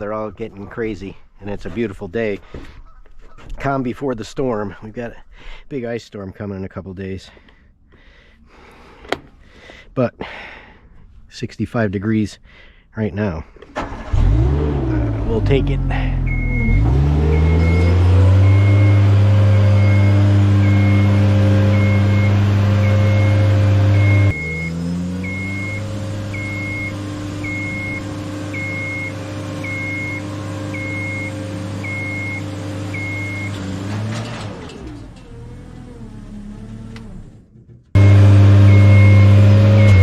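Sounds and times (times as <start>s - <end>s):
lift power unit humming: 14.0s - 37.4s, 38.0s - 40.0s
motion alarm beeping: 16.2s - 33.6s, 38.0s - 40.0s.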